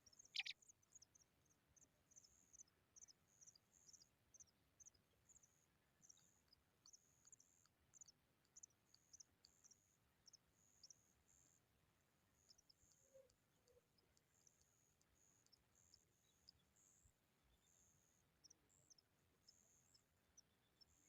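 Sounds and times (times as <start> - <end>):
high bird chirps: 0.2 - 0.6.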